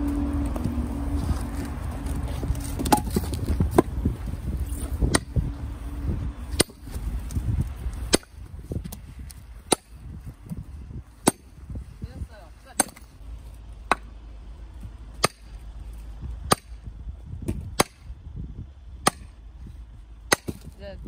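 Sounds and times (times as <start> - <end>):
low rumble: 0.0 - 21.0
axe chopping firewood: 2.3 - 4.0, 4.6 - 5.4, 6.4 - 11.8, 12.6 - 13.1, 13.8 - 14.1, 14.8 - 18.1, 19.0 - 19.4, 20.2 - 20.9.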